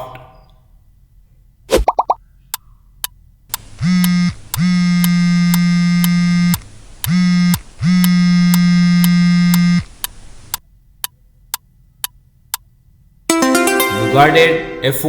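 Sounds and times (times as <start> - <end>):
sharp ticking: 3.5 - 10.6
phone vibrating on a table: 3.6 - 10.6.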